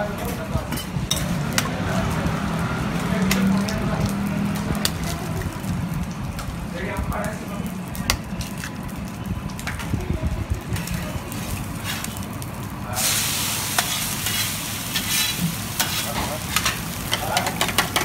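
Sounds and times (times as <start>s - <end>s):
egg sizzling on a griddle: 0.0s - 18.0s
metal spatula tapping and scraping: 4.6s - 5.2s, 15.0s - 18.0s.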